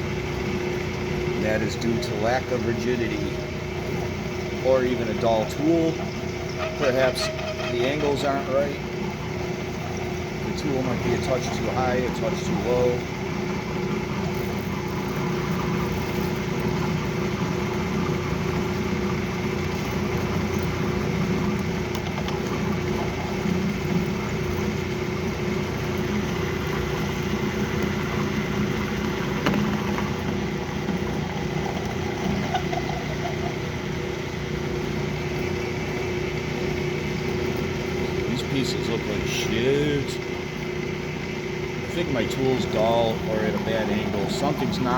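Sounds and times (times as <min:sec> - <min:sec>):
metal lathe cutting: 0:04.6 - 0:08.9.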